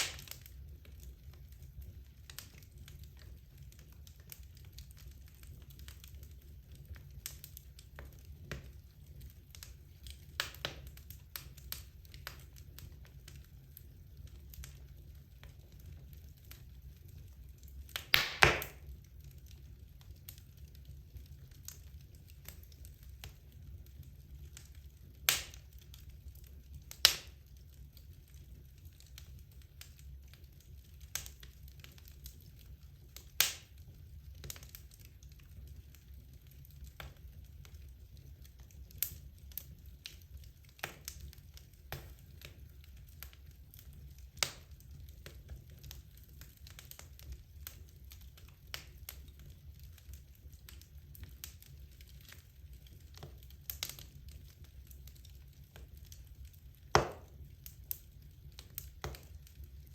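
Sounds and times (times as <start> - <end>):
sharp pops from burning logs: 0.0 - 59.9
wood fire crackling: 0.0 - 59.9.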